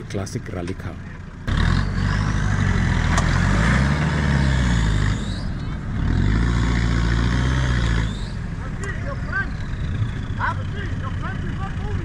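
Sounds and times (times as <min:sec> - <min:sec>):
engine revving hard: 0:01.5 - 0:08.4.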